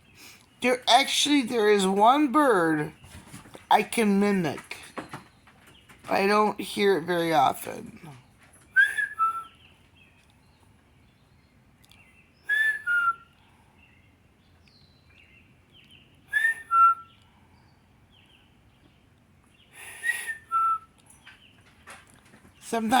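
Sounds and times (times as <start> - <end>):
person whistling bird call: 8.8 - 9.6, 12.5 - 13.3, 16.3 - 17.1, 19.9 - 20.9.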